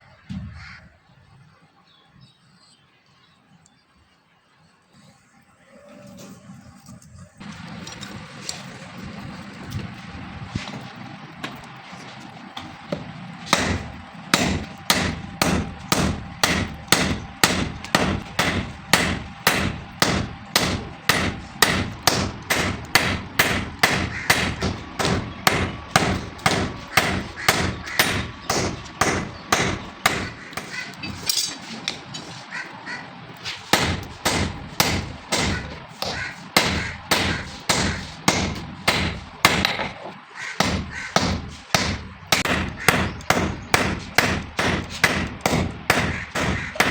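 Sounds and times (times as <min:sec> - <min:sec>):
hammer striking steel on anvil: 0:12.9 - 0:32.0, 0:33.7 - 0:46.9.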